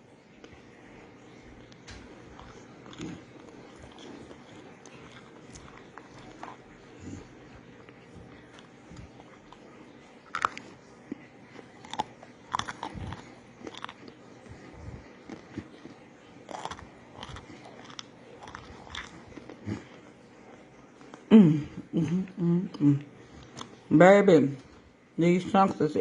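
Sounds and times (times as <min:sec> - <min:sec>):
chewing: 0:00.3 - 0:21.3, 0:22.7 - 0:23.9
crunching of crispy food: 0:01.6 - 0:06.8, 0:07.5 - 0:21.2.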